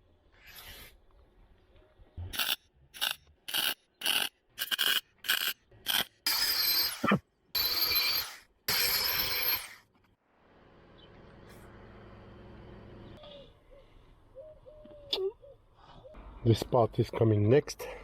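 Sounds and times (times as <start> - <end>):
welder crackling: 2.3 - 10.1.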